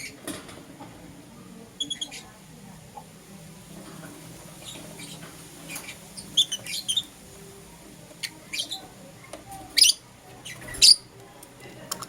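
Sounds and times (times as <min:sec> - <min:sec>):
lovebirds chirping: 0:01.8 - 0:02.4, 0:04.5 - 0:07.2, 0:08.2 - 0:11.2.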